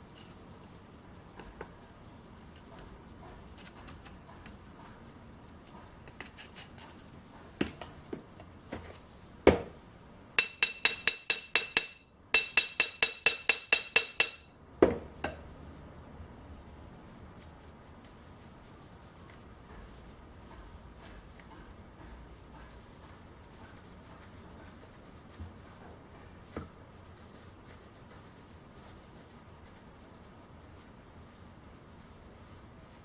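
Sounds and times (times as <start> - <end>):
metal taps ringing: 10.4 - 14.6.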